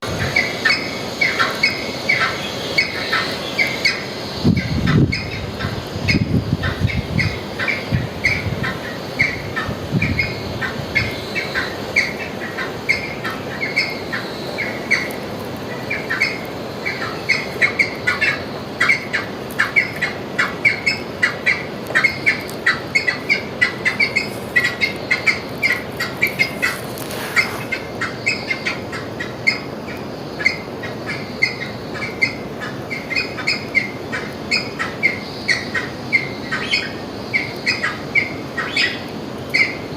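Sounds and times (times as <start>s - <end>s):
birds calling: 0.0s - 39.9s.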